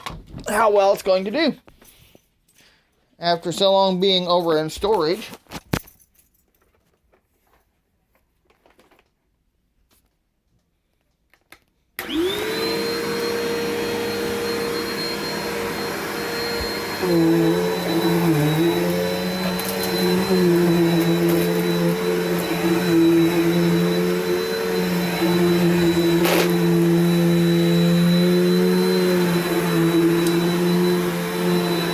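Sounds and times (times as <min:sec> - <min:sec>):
vacuum cleaner motor whine: 0:12.0 - 0:31.9.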